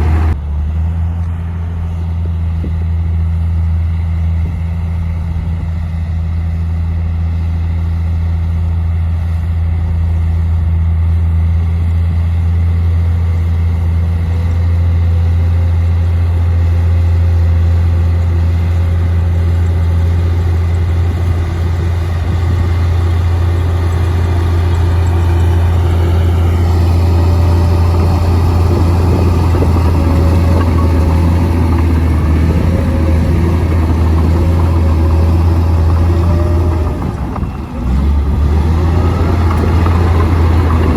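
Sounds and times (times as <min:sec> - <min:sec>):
bulldozer diesel engine running: 0:00.0 - 0:40.9
clatter: 0:13.3 - 0:40.9.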